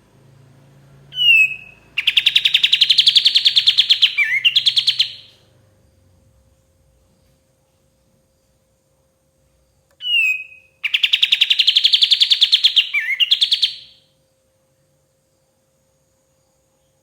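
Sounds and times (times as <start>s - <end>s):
songbird whistle and trill: 1.1s - 5.5s, 10.0s - 14.1s.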